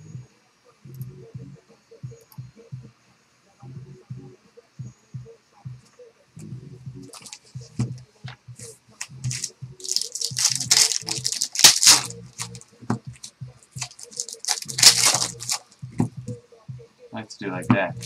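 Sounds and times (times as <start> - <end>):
plastic wrap and cardboard ripping: 9.2 - 12.6, 13.2 - 15.7.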